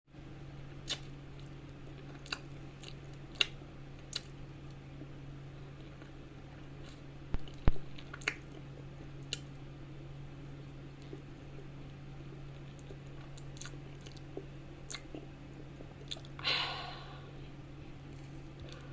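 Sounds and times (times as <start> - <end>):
steady low hum: 0.1 - 18.9
wet chewing mouth sounds: 0.8 - 4.4, 6.8 - 9.6, 12.3 - 16.4.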